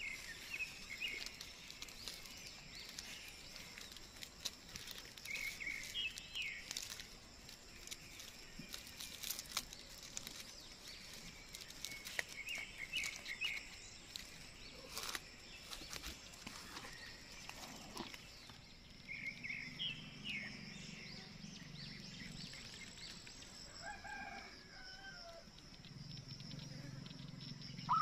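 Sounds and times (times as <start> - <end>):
bird chirping: 0.0 - 28.0
clicks and rustles: 0.2 - 18.6.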